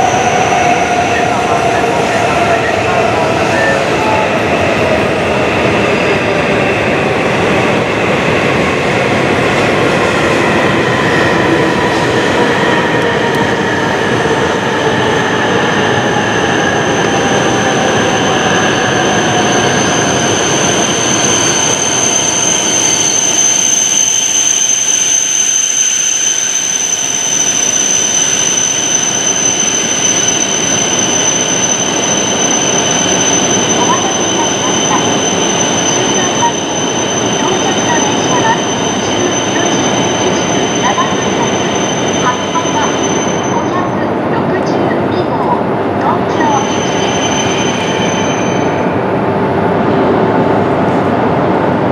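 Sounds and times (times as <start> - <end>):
high steady squeal: 18.2 - 44.0, 46.3 - 49.0.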